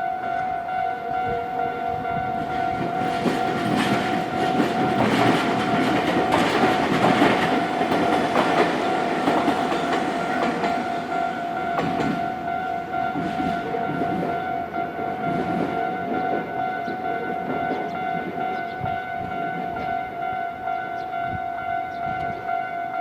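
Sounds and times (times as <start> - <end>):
crossing warning signal ringing: 0.0 - 23.0
train wheels clattering over rail joints: 2.7 - 12.3.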